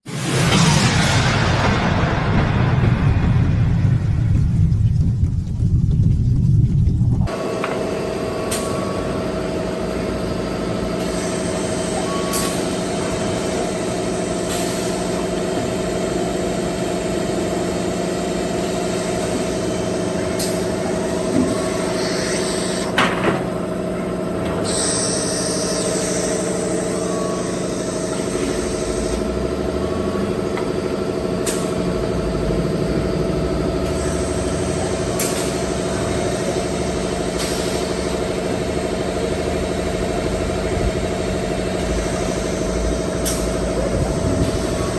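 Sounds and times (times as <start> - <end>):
machine humming: 15.2 - 44.9.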